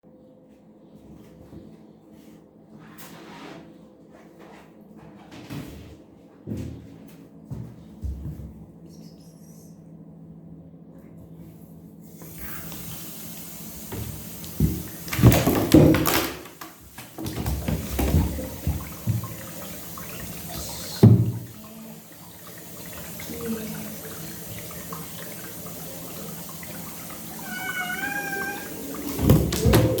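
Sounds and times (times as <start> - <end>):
water splashing: 14.0 - 30.0
cat meowing: 27.3 - 29.1.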